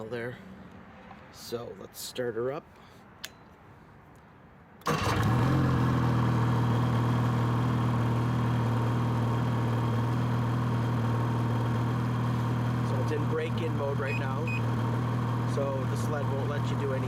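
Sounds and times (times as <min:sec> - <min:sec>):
snowmobile engine starting and idling: 0:04.8 - 0:17.0.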